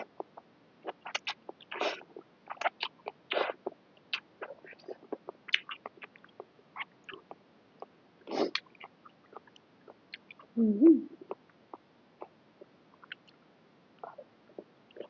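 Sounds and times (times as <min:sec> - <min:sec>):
mouth chewing smacks: 0:00.0 - 0:10.5, 0:11.2 - 0:13.4.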